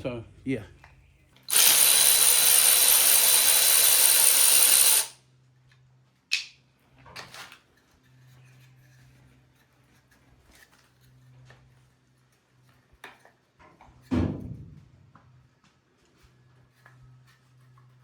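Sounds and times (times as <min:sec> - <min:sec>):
power tool running: 0:01.5 - 0:05.2.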